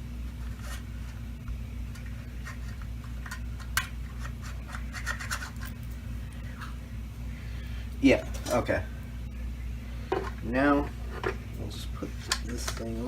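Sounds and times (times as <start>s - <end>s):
steady low hum: 0.0s - 13.0s
plastic parts clicking and scraping: 2.0s - 5.8s.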